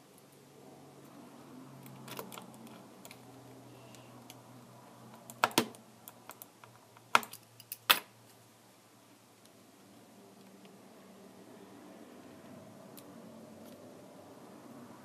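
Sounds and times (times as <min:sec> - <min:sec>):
small tools clicking and tapping: 0:05.1 - 0:08.1.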